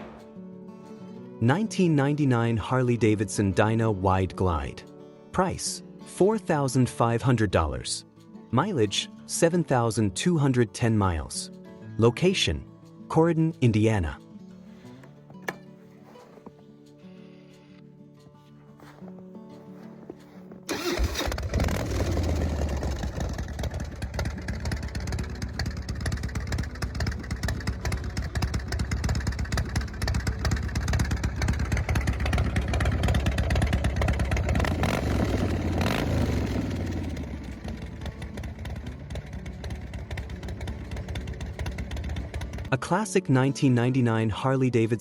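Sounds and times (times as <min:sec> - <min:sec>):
motorcycle engine rumbling: 0:19.6 - 0:42.7.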